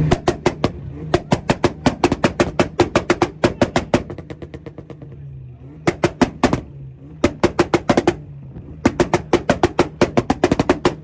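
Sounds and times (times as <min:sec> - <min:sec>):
exhaust popping and banging: 0:00.0 - 0:11.0.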